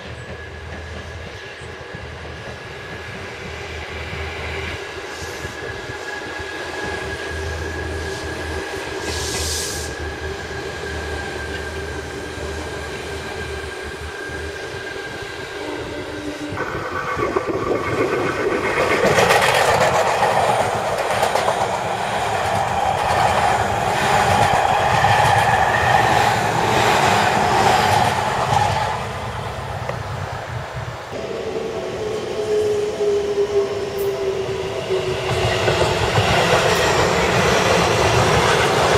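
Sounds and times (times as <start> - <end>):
electric train moving: 0.0 - 38.9
train wheels clacking over rail joints: 16.6 - 28.8.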